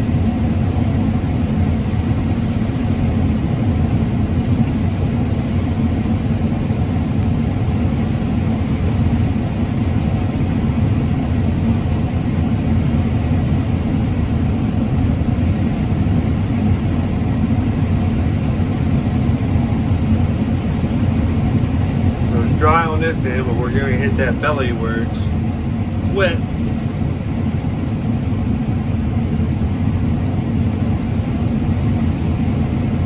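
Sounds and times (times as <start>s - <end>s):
combine harvester engine rumble: 13.0s - 33.0s
faint steady hum: 13.4s - 33.0s.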